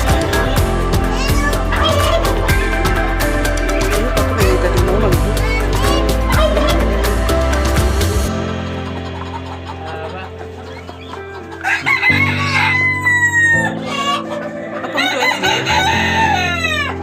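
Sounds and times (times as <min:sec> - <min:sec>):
background music: 0:00.0 - 0:17.0
rooster crowing: 0:11.6 - 0:17.0.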